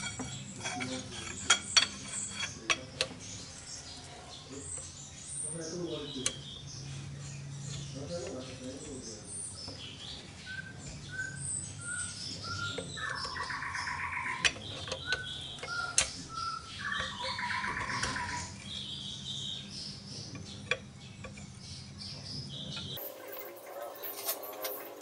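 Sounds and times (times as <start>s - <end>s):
birds chirping: 0.0s - 25.0s
songbird whistling and trilling: 9.4s - 20.0s.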